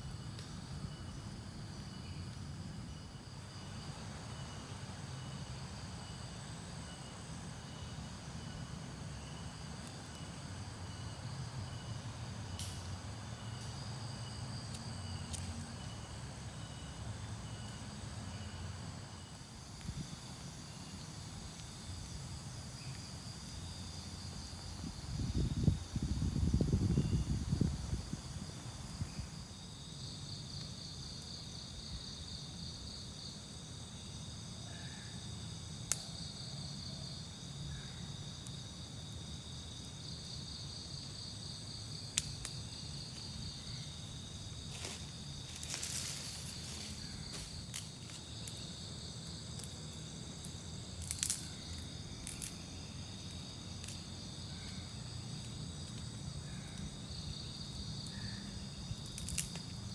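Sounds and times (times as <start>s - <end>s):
crickets and insects trilling: 0.0s - 59.9s
short rustle: 44.7s - 48.2s.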